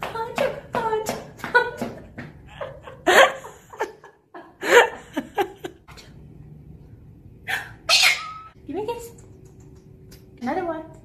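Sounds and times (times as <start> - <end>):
parrot making laugh-like calls: 7.9 - 8.6.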